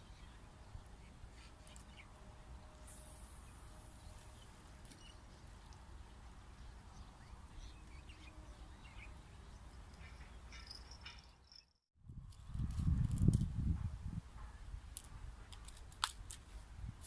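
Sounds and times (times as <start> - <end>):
wind on microphone: 12.0 - 15.6.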